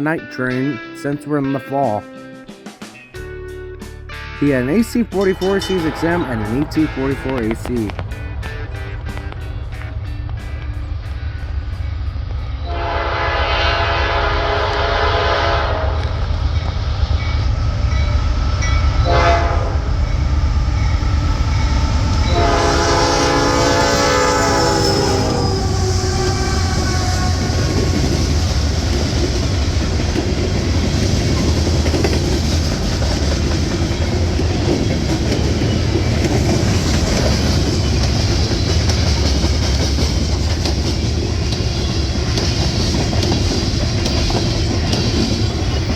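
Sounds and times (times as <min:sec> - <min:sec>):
locomotive engines running: 0:04.5 - 0:12.3, 0:19.9 - 0:45.9
train horn blasts: 0:05.2 - 0:09.2, 0:12.6 - 0:16.2, 0:19.0 - 0:20.2, 0:22.2 - 0:28.2
train wheels on rails clickety-clack: 0:05.2 - 0:12.8, 0:15.9 - 0:45.9.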